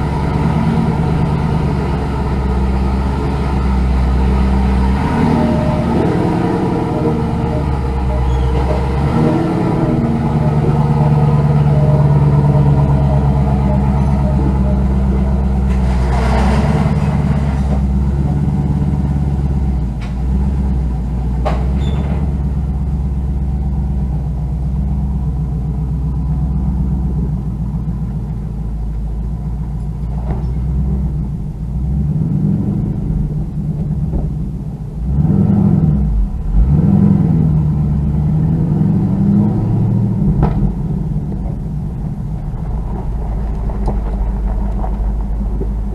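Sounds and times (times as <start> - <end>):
car engine revving under load: 0.0 - 45.9.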